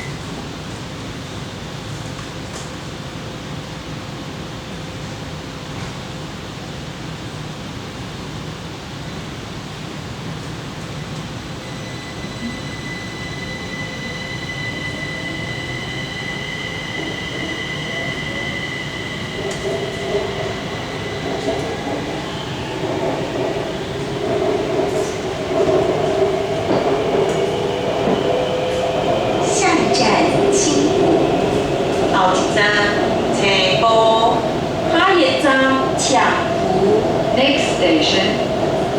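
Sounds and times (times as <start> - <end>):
train wheels rumbling on rail: 0.0 - 38.9
wheel squeal: 11.6 - 24.2.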